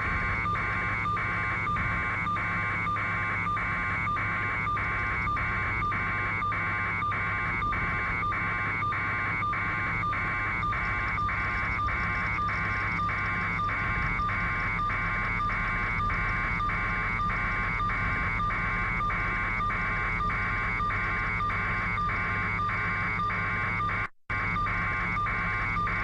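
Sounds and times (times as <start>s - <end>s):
helicopter cabin drone: 0.0s - 26.0s.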